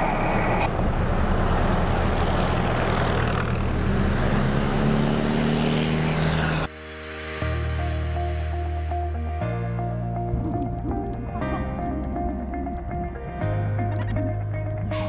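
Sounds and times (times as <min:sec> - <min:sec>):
vehicle engine running: 0:00.0 - 0:06.7
road and wind noise: 0:00.0 - 0:07.2.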